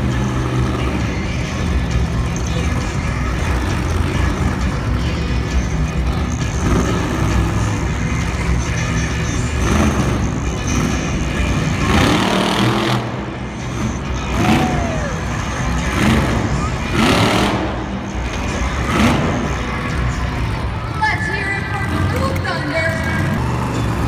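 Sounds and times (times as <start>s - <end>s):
monster truck engines rumbling: 0.0s - 24.0s.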